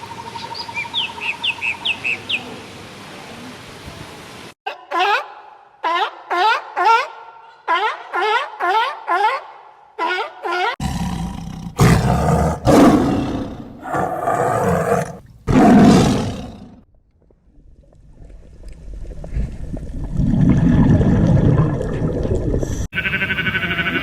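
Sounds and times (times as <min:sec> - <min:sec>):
large animal roaring: 0:10.8 - 0:16.8.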